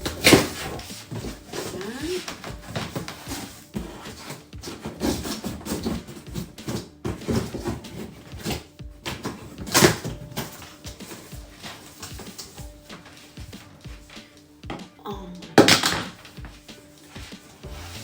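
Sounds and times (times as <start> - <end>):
cardboard box being handled: 0.0 - 14.2.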